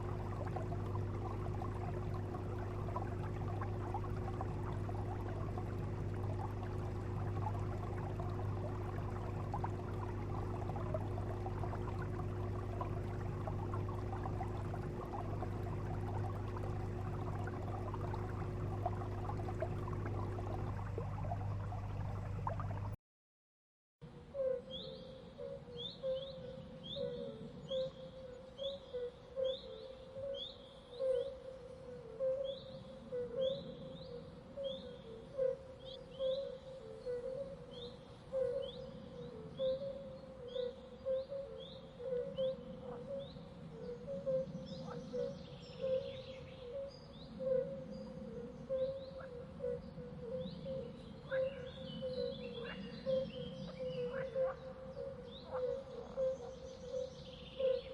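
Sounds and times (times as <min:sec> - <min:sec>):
low background hiss: 0:00.0 - 0:23.0
pulsing low tone: 0:00.0 - 0:23.0.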